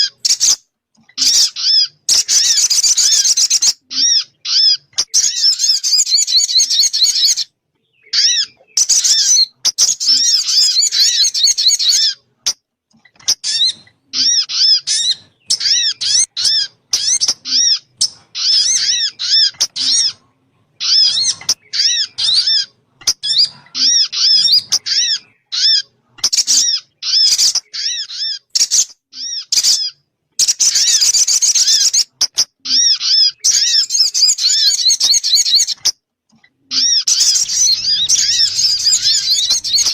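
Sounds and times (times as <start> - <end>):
bird chattering calls: 36.7 - 39.9.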